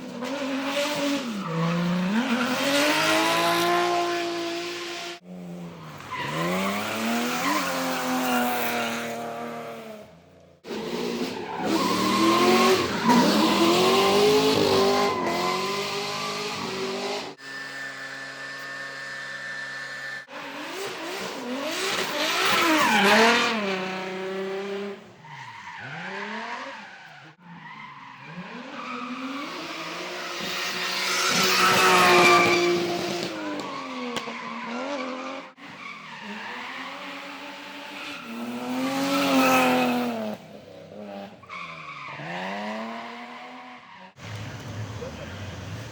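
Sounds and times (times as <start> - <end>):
car engines revving: 0.0 - 45.9
tyres squealing and skidding: 0.1 - 9.3, 10.7 - 45.9.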